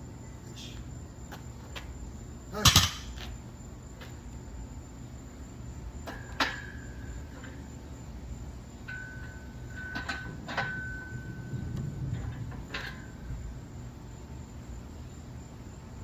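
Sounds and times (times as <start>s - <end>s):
faint high whine: 0.0s - 16.0s
barbell plates clinking: 8.8s - 11.4s.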